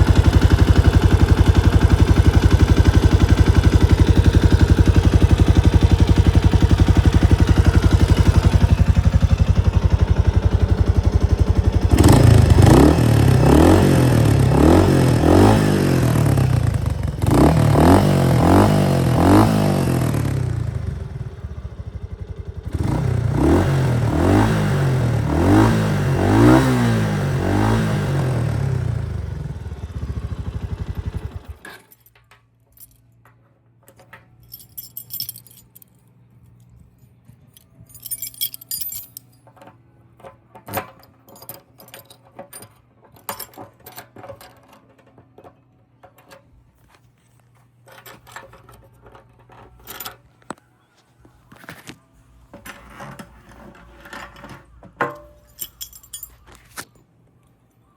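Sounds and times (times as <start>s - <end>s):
motorcycle engine revving: 0.0s - 31.6s
light metallic clinks: 31.7s - 39.6s, 55.1s - 57.1s.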